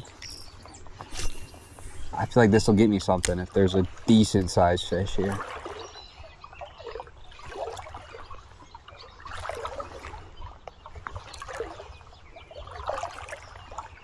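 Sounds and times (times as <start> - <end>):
river water splashing: 5.4 - 6.0.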